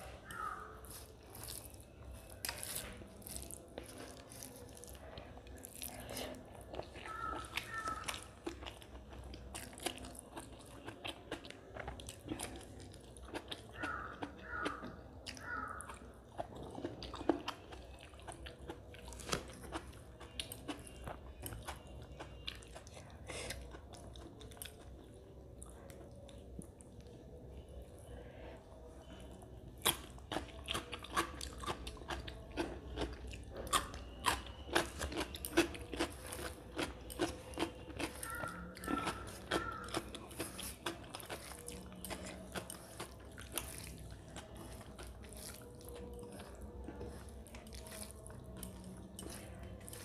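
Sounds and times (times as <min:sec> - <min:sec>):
wet chewing and lip smacking: 0:00.0 - 0:50.0
salad crunching: 0:00.2 - 0:18.2, 0:29.8 - 0:50.0.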